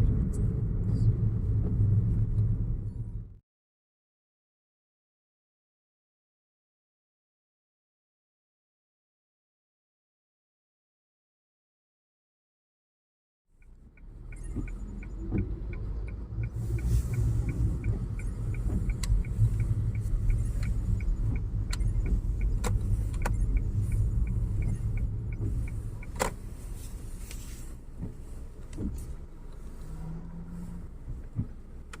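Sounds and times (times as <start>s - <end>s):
car engine and road rumble: 0.0s - 3.4s, 13.5s - 32.0s
sharp clicks: 13.6s - 26.6s
light regular ticking: 13.6s - 29.9s.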